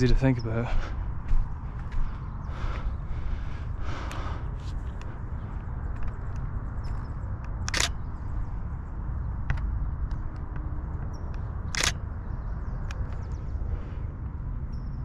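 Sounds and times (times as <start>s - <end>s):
low rumble of wind: 0.0s - 15.0s
camera shutter firing: 7.6s - 8.0s, 11.7s - 12.0s.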